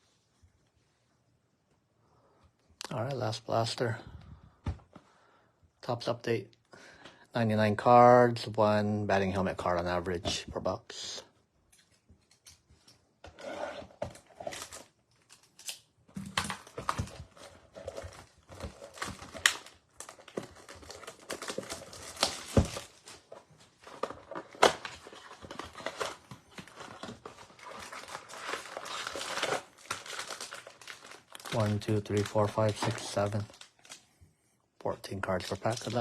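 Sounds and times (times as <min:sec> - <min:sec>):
plastic wrapping crinkling and tearing: 0:14.2 - 0:34.1, 0:35.2 - 0:36.0.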